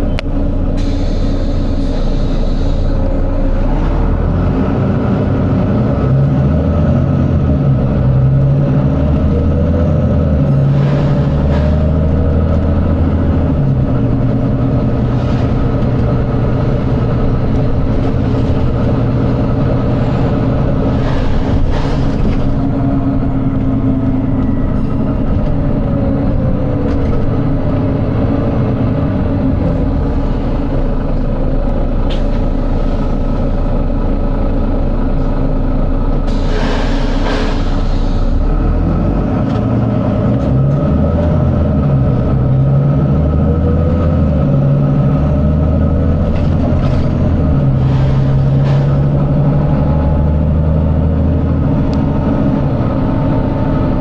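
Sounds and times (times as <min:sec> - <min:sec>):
bus diesel engine running: 0:00.0 - 0:54.0
air hiss: 0:00.8 - 0:03.0, 0:36.3 - 0:38.4.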